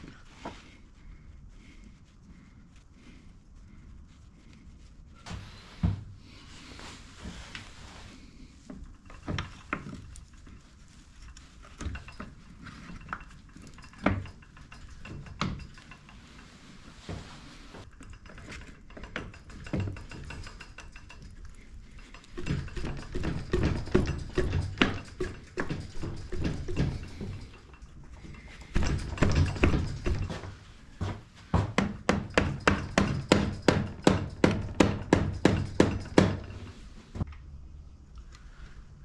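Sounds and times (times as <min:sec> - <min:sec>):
metal tools clinking: 0:11.2 - 0:17.2, 0:17.8 - 0:31.1.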